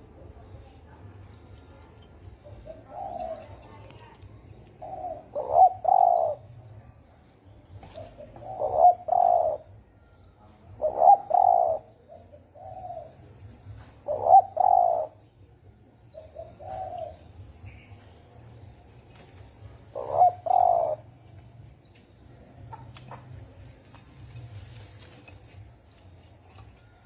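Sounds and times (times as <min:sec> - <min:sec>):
dove cooing: 0:02.3 - 0:06.7, 0:07.7 - 0:09.8, 0:10.6 - 0:15.4, 0:16.0 - 0:17.8, 0:18.8 - 0:21.2.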